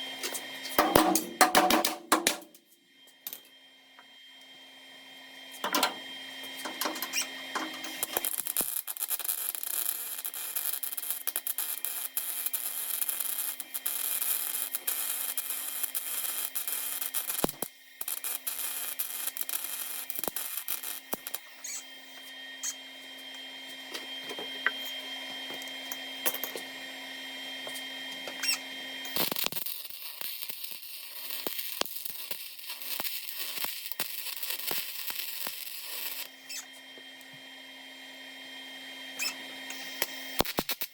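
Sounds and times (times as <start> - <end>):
steady welder hum: 0.0 - 40.9
welding arc crackling and popping: 0.2 - 2.6, 5.6 - 22.8, 28.3 - 36.7, 39.2 - 40.9.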